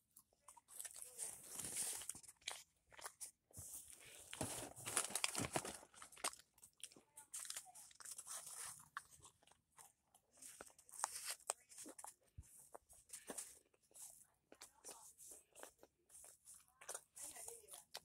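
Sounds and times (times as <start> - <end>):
person chewing and crunching: 0.0 - 18.0.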